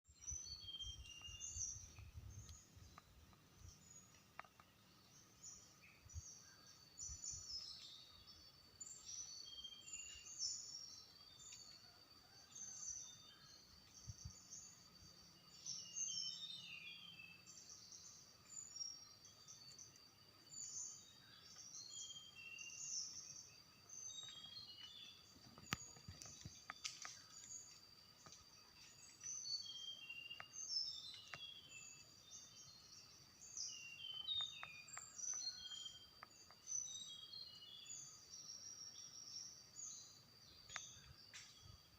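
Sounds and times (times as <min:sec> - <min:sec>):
songbird warbling: 0:29.3 - 0:39.3.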